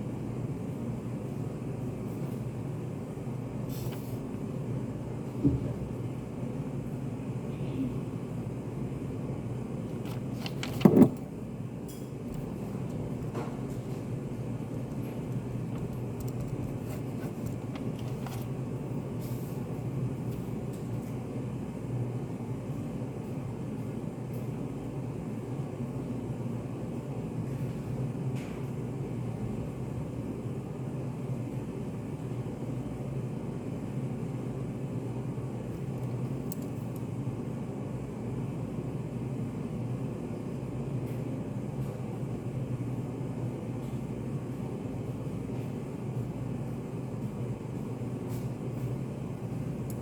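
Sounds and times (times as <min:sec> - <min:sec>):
low hum and rumble: 0:00.0 - 0:20.7
faint clicks and taps: 0:14.8 - 0:18.5.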